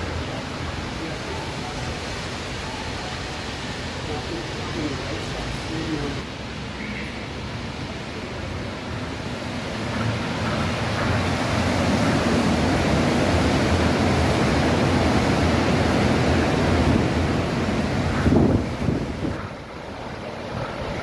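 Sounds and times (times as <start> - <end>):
train rushing past: 0.0 - 21.0.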